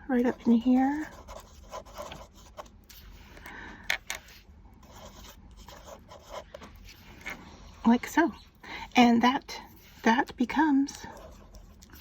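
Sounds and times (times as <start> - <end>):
pen scratching on paper: 0.2 - 3.1, 4.2 - 8.3, 9.6 - 12.0.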